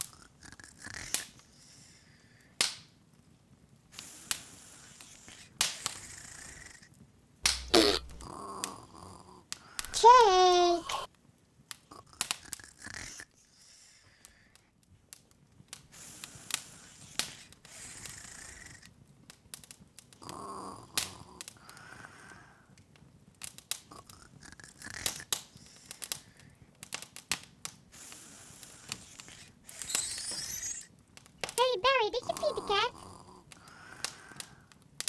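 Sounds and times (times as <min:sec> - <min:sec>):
wood fire crackling: 0:07.4 - 0:08.5.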